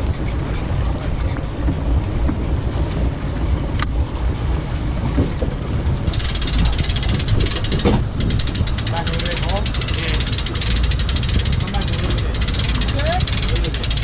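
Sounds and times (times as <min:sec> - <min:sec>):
boat motor rumbling: 0:00.0 - 0:14.0
wind on microphone: 0:00.0 - 0:14.0
rapid clicking: 0:06.1 - 0:14.0.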